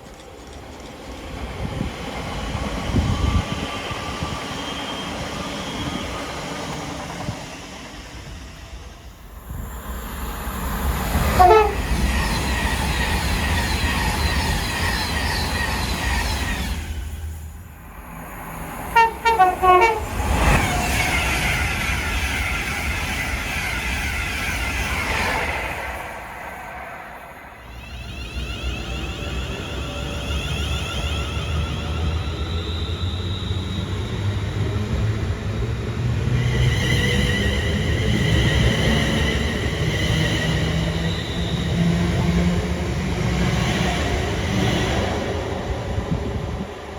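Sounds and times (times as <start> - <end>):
train wheels rumbling on track: 0.0 - 46.9
train horn toot: 11.3 - 12.0, 19.0 - 20.2.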